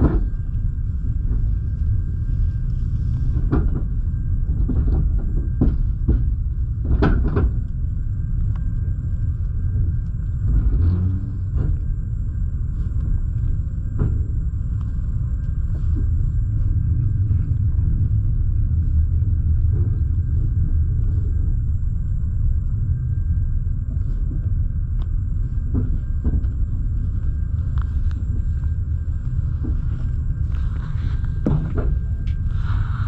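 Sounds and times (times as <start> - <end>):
faint steady whine: 0.0 - 33.0
train coach low rumble: 0.0 - 33.0.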